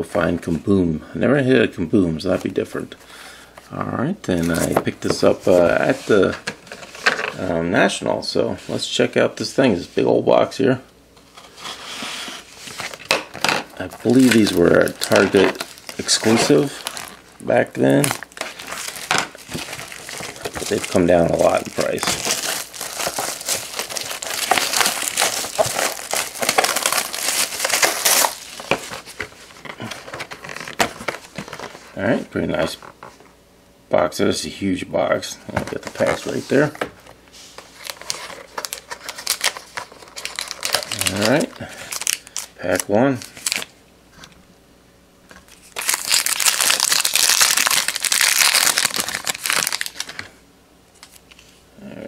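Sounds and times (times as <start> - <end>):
plastic shrink wrap crinkling: 11.4 - 32.9, 35.5 - 36.8, 37.4 - 43.7, 45.3 - 50.4.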